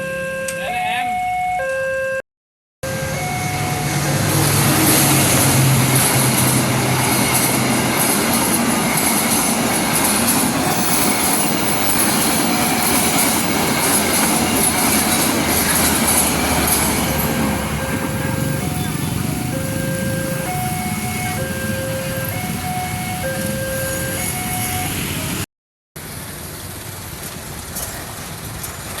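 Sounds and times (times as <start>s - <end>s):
diesel locomotive engine hum: 2.8s - 29.0s
rush of passing carriages: 2.8s - 29.0s
train wheels clattering over rail joints: 4.4s - 17.7s, 27.2s - 29.0s.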